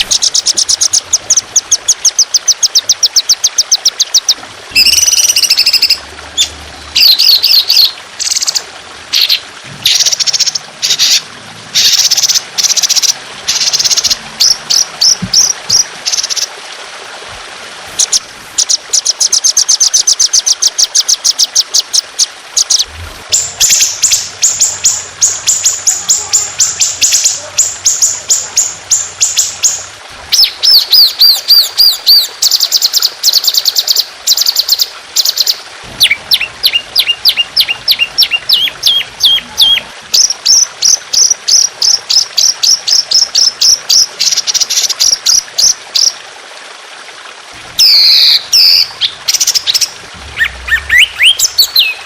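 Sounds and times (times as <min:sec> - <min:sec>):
bird singing: 0:00.0 - 0:08.6, 0:22.6 - 0:40.6, 0:47.8 - 0:52.0
water trickling: 0:00.0 - 0:52.0.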